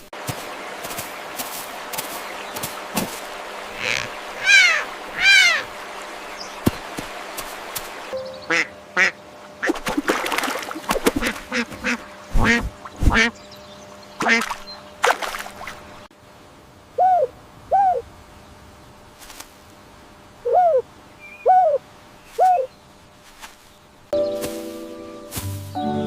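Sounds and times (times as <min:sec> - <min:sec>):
ducks quacking: 0:02.3 - 0:05.9, 0:08.4 - 0:09.8, 0:11.0 - 0:13.4, 0:14.2 - 0:14.7.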